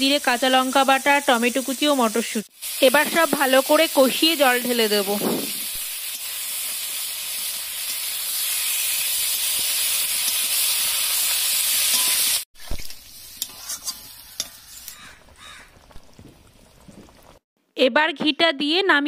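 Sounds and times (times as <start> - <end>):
vegetables sizzling in hot oil: 0.0 - 17.4
spatula stirring in pan: 13.1 - 15.6.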